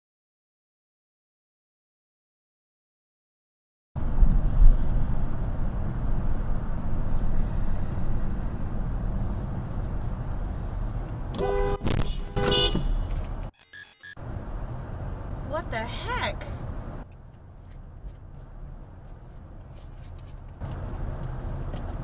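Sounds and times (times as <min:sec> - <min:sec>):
car rumbling on road: 0:04.0 - 0:13.5, 0:14.2 - 0:22.0
car horn honking: 0:11.3 - 0:13.4.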